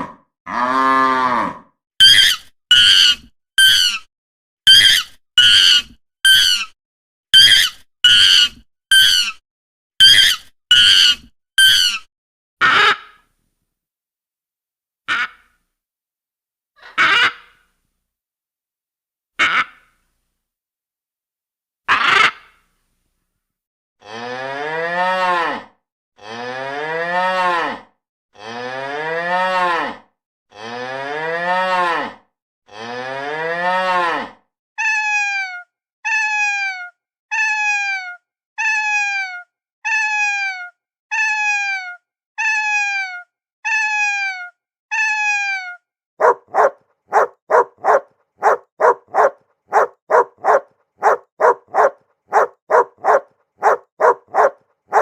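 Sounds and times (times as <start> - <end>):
cow mooing: 0.0 - 1.7, 24.0 - 27.8, 46.2 - 55.0
dog barking: 46.2 - 55.0.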